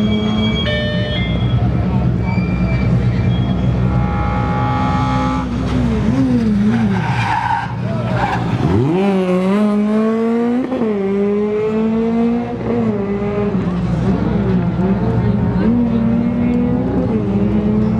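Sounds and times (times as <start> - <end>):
tyre squeal: 0.0 - 5.6, 6.6 - 8.9
rally car engine revving: 1.8 - 17.9.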